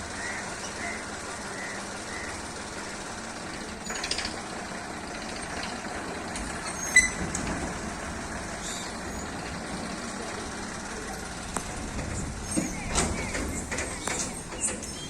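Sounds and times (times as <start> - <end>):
tractor engine running: 0.0 - 15.0
short rattle: 3.5 - 15.0.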